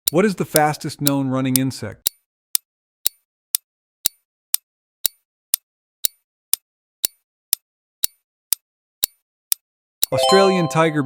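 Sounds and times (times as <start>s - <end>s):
countdown timer ticking: 0.0s - 1.7s, 10.0s - 11.0s.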